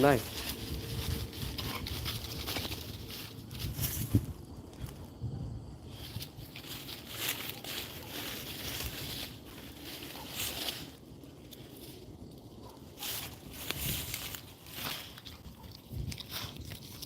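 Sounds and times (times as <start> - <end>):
dog chewing and biting: 15.1 - 17.0.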